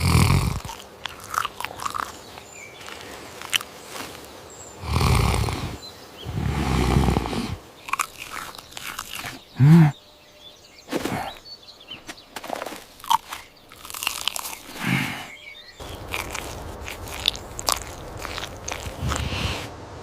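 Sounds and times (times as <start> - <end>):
crunching and chewing: 0.0 - 10.0, 12.1 - 19.7
low grunt-like sound: 9.3 - 10.0.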